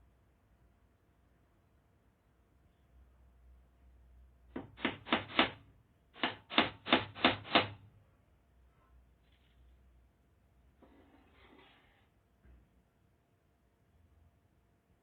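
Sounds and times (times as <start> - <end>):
hammer driving a nail: 4.6 - 5.6, 6.2 - 7.8.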